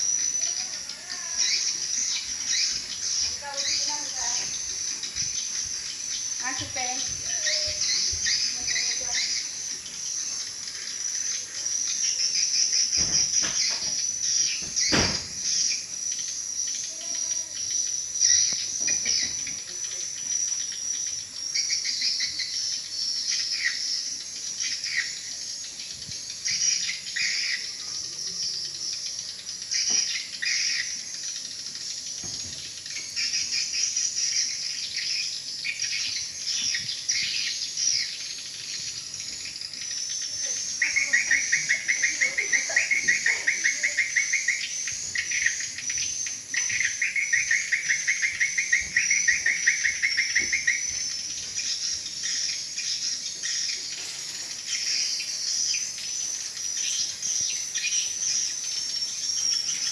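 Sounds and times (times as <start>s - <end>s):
rapid bird trills: 0.0s - 59.9s
swiftlets twittering: 0.0s - 59.9s.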